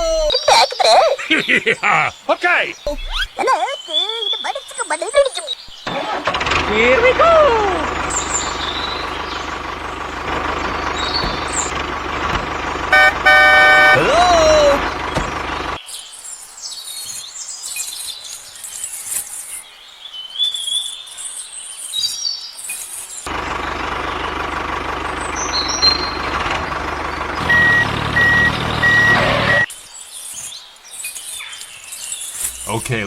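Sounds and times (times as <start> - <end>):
truck engine running: 5.8 - 15.8, 23.3 - 29.7
reversing alarm beeping: 12.9 - 15.3, 27.4 - 29.7.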